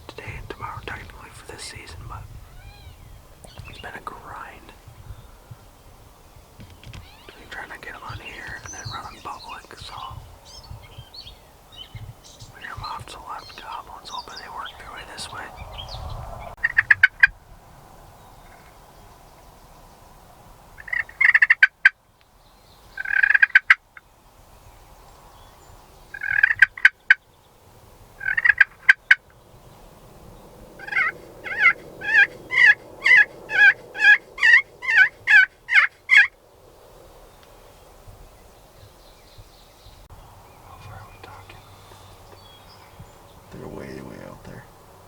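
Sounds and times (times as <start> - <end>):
turkey gobbling: 30.8 - 36.3
turkey yelping: 30.8 - 36.3.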